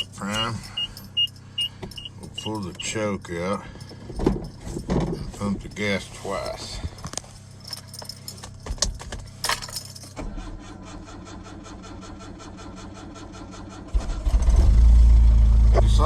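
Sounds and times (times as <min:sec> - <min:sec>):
engine starter cranking: 0:00.0 - 0:03.0, 0:08.8 - 0:14.6
keys rattling in ignition: 0:00.0 - 0:10.3.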